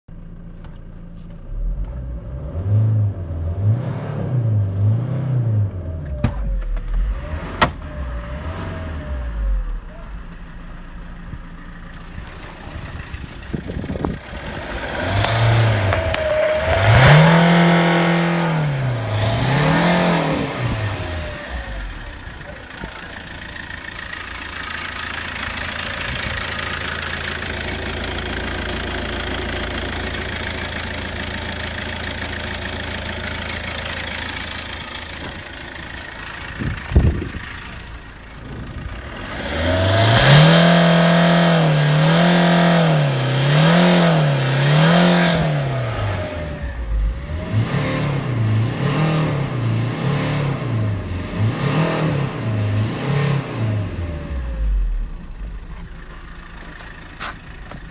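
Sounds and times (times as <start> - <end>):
diesel engine revving: 1.5 - 57.9.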